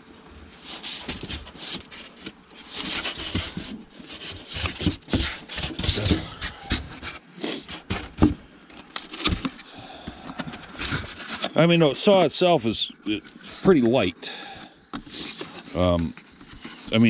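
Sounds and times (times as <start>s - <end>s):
packaging scraping and rustling: 0.5s - 17.0s
knocks on cardboard box: 4.4s - 6.2s, 7.8s - 8.4s.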